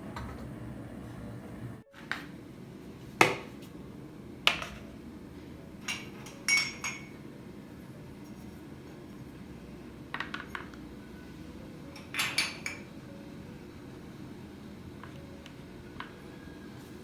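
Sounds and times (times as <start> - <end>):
cup ringing: 5.8 - 7.2
tableware knocking and clinking: 5.8 - 7.2, 10.1 - 10.8, 12.0 - 12.9.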